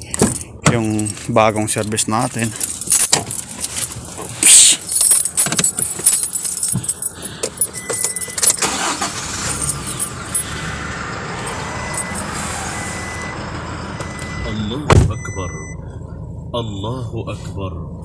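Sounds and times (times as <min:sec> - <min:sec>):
keys jangling in ignition: 0:00.0 - 0:10.6, 0:11.4 - 0:12.3
car engine starting and idling: 0:00.0 - 0:18.0
thin warning tone: 0:04.6 - 0:16.0.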